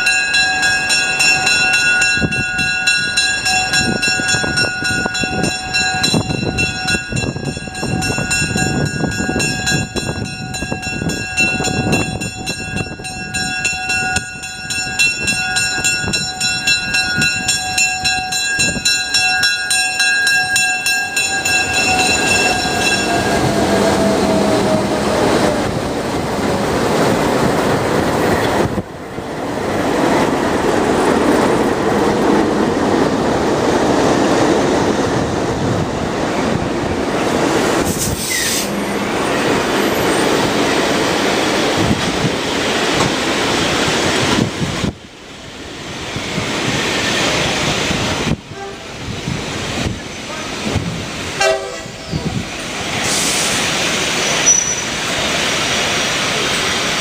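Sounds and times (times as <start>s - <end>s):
railroad cars rumbling and clattering: 0.0s - 57.0s
train horn chord: 48.5s - 49.0s, 51.4s - 52.1s.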